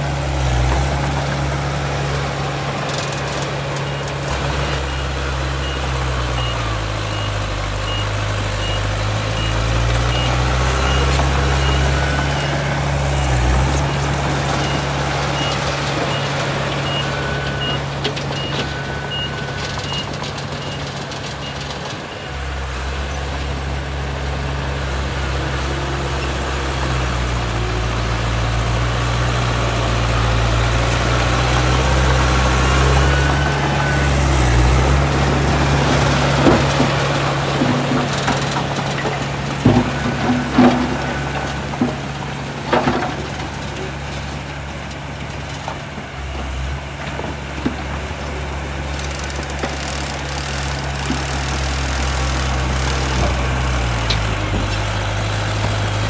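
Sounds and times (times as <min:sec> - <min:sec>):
heavy diesel machinery running: 0:00.0 - 0:56.0
reversing alarm beeping: 0:02.1 - 0:22.5, 0:29.8 - 0:41.7.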